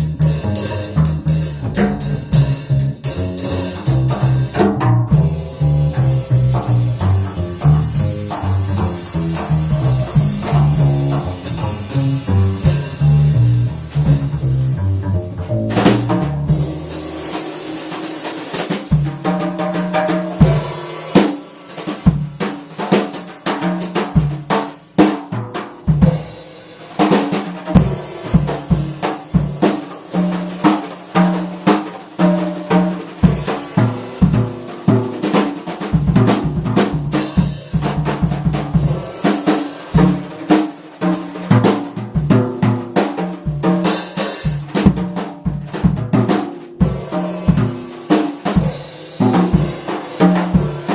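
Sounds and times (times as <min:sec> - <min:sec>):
bass plucking low notes: 0:00.0 - 0:17.0
jazz drum kit solo: 0:00.0 - 0:50.9.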